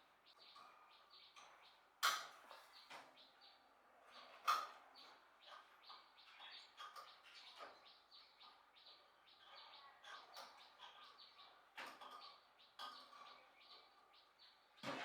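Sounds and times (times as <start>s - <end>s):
faint birds chirping: 0.0s - 14.8s.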